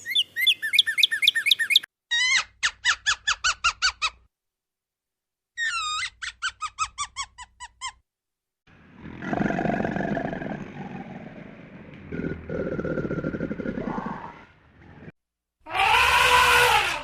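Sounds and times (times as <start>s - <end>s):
high-pitched squeaky animal calls: 0.7s - 4.2s, 5.6s - 8.0s
deep rough animal vocalization: 8.7s - 15.1s.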